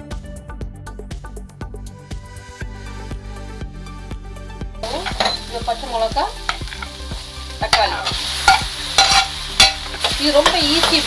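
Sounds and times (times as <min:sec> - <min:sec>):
onions sizzling in a skillet: 0:04.8 - 0:11.0
spatula scraping a pan: 0:07.7 - 0:11.0.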